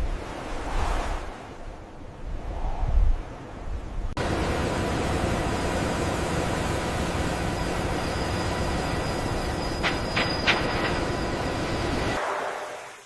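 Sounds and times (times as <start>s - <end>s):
heavy machinery rushing hum: 4.2s - 12.2s.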